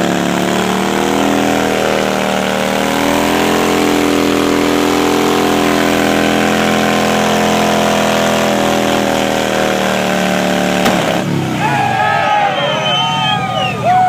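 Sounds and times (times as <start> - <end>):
motorcycle engine revving: 0.0 - 13.7
spinning tyre rushing: 0.0 - 14.0.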